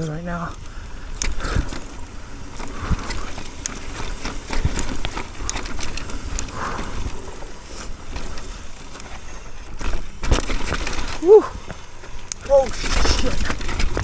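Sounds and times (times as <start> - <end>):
bike clattering over rocks: 0.0 - 14.0.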